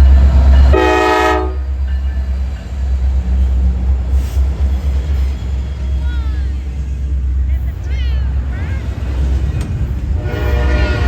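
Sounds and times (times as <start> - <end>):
freight train rumbling: 0.0 - 11.0
locomotive horn blast: 0.7 - 1.8, 10.1 - 11.0.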